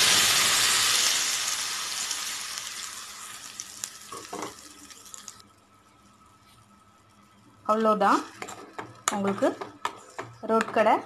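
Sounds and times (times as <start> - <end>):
paste sizzling in hot oil: 0.0 - 5.4.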